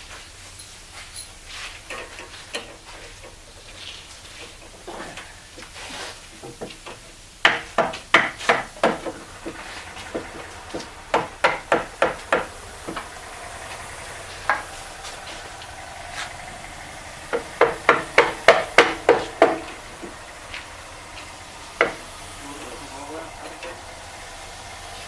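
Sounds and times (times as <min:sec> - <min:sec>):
hammer knocking on bolt: 0:06.4 - 0:13.2, 0:17.3 - 0:20.2, 0:21.8 - 0:22.1.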